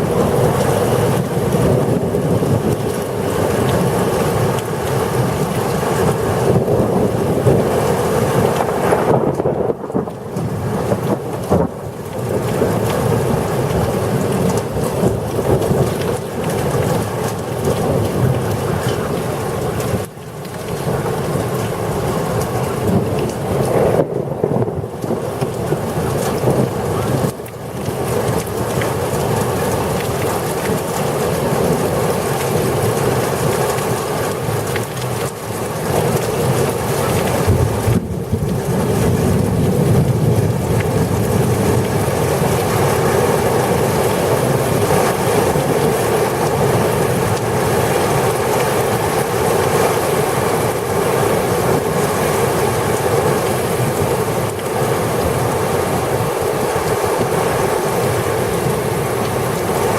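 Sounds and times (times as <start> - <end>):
heavy rain: 0.0 - 59.9
strong wind roaring: 0.0 - 59.9.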